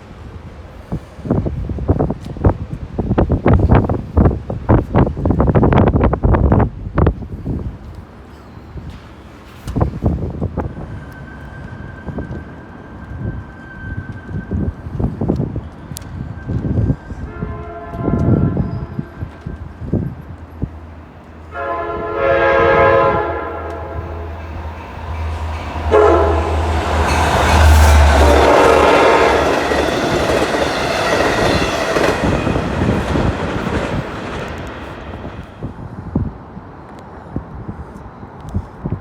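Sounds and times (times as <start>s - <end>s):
train horn blasts: 17.2s - 19.3s, 21.4s - 30.5s
train wheels clattering on rails: 23.1s - 35.9s.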